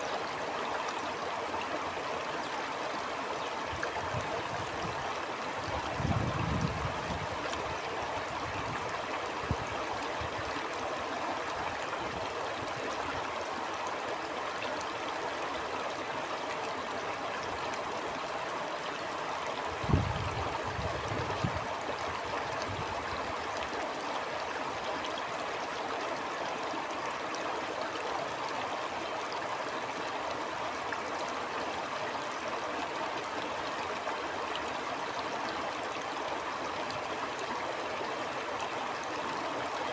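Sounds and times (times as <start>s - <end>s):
stream water flowing: 0.0s - 39.9s
wind rumble on microphone: 4.0s - 9.7s, 19.8s - 21.8s, 22.5s - 23.2s.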